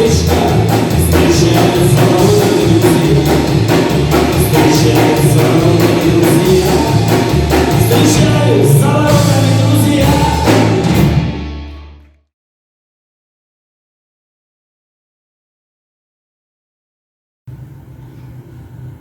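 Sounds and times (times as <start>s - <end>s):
drum kit strikes: 0.0s - 11.8s
heavy bass line: 0.0s - 12.1s
rock band playing live: 0.0s - 12.1s.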